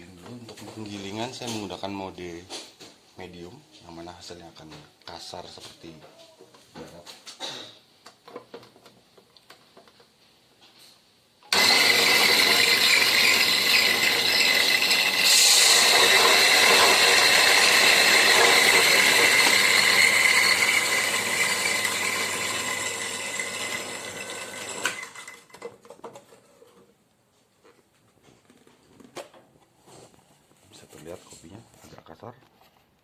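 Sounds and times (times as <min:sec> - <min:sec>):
coffee grinder grinding beans: 0:11.5 - 0:25.8.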